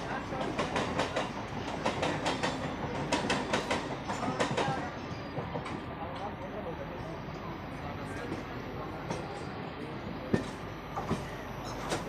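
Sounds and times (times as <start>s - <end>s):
train running rumble: 0.0s - 12.0s
train wheels clattering over rail joints: 0.2s - 6.3s, 10.3s - 12.0s.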